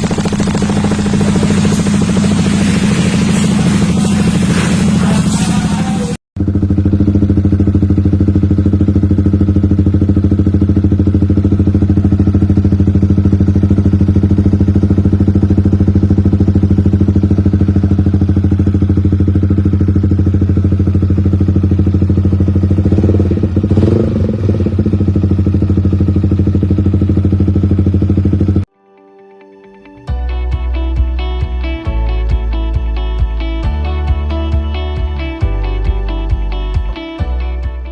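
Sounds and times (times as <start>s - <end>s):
motorcycle engine idling: 0.0s - 28.7s.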